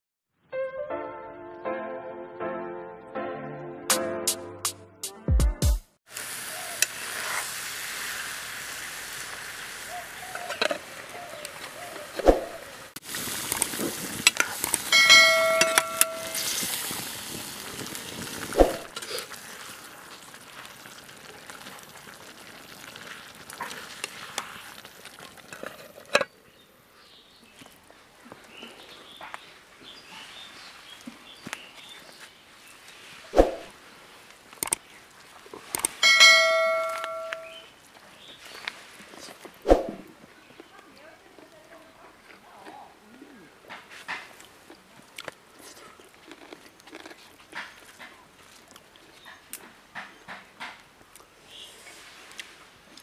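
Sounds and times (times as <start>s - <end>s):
curry sizzling in a wok: 6.1s - 26.0s
metal ladle scraping a pan: 6.9s - 7.6s, 14.4s - 16.9s
bell-like chime: 14.9s - 16.5s, 36.0s - 37.6s.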